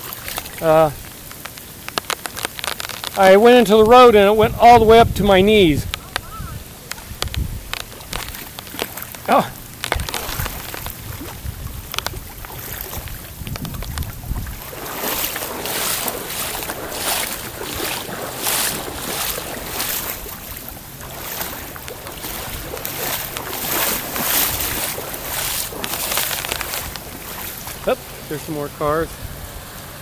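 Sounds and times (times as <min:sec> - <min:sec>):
wading through water: 0:00.0 - 0:30.0
wind on microphone: 0:03.6 - 0:08.8, 0:09.6 - 0:28.1.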